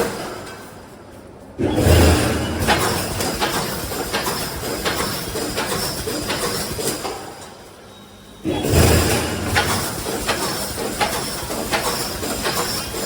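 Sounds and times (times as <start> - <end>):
welding machine heavy stroke: 1.6 - 7.2, 8.4 - 13.0.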